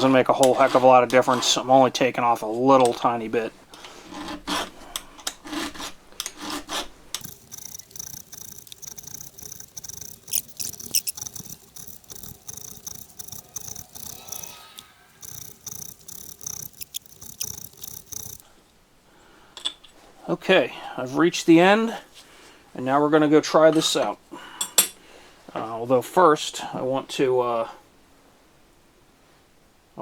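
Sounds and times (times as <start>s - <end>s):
file scraping chainsaw chain: 0.1s - 1.7s, 3.9s - 18.4s.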